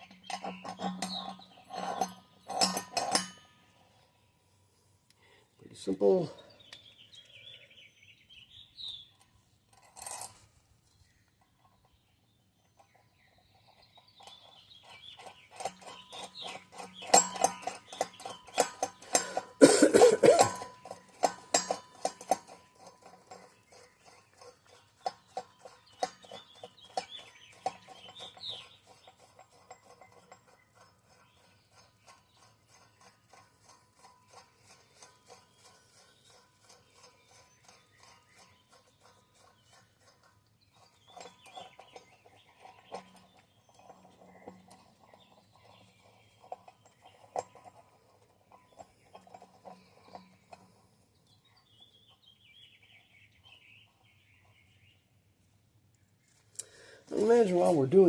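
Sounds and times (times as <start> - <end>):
metallic clicking and clinking: 0.0 - 4.0, 9.2 - 12.0, 12.7 - 52.2.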